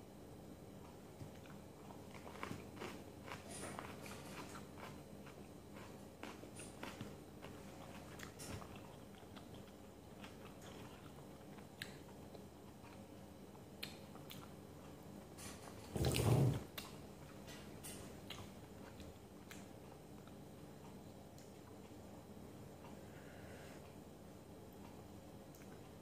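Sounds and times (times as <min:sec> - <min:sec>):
person chewing food: 0:00.8 - 0:15.0, 0:16.8 - 0:21.9
soft mouth and finger clicks: 0:13.8 - 0:14.5.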